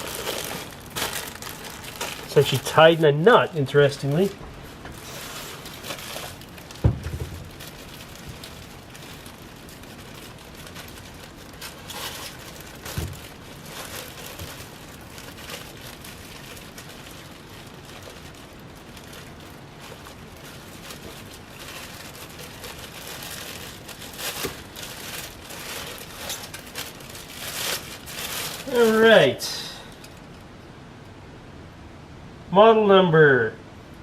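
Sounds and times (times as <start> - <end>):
packing material crinkling: 0.0 - 29.2
small knocks: 6.7 - 8.4.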